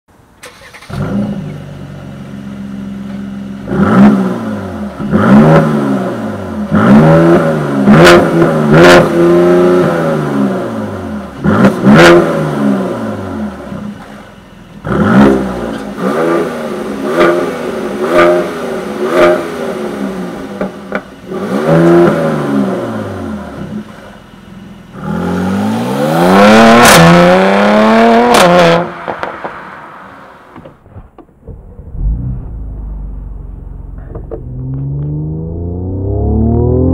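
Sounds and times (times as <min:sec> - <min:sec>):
car engine starting and revving: 0:00.4 - 0:14.2, 0:14.8 - 0:24.1, 0:24.8 - 0:30.5, 0:31.3 - 0:36.9
exhaust crackles: 0:30.8 - 0:36.9.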